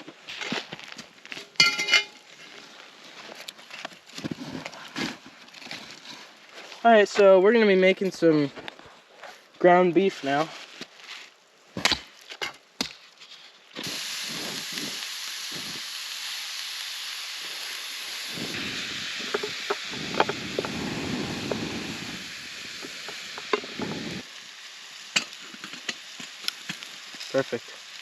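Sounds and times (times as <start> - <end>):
meat sizzling in a pan: 13.8 - 28.0.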